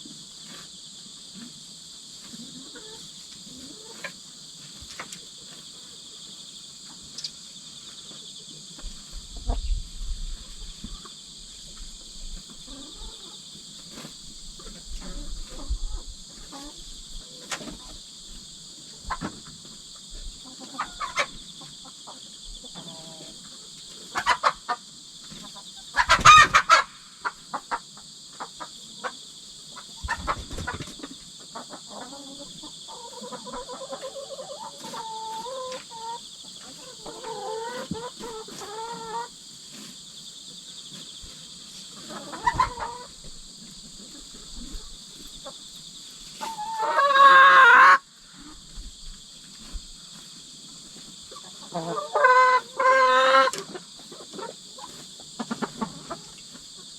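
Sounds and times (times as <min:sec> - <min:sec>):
crickets chirping: 0:00.0 - 0:56.9
hens clucking: 0:02.2 - 0:06.0, 0:08.8 - 0:40.0, 0:41.0 - 0:56.9
hen squawk: 0:26.0 - 0:27.0.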